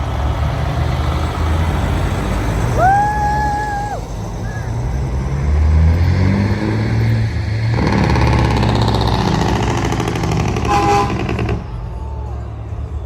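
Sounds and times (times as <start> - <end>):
truck engines rumbling: 0.0 - 13.0
truck horn toot: 10.5 - 11.7.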